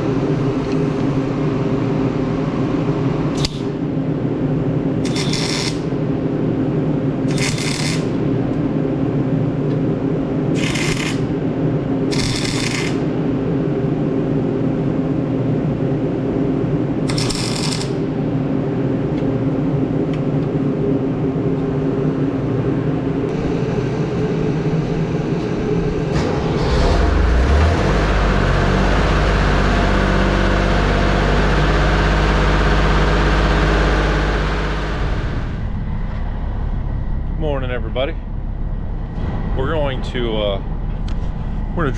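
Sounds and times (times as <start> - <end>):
engine running: 5.0 - 6.0, 7.2 - 8.6, 10.4 - 13.5, 17.0 - 18.2, 23.2 - 41.9
deep engine rumble: 18.0 - 41.9.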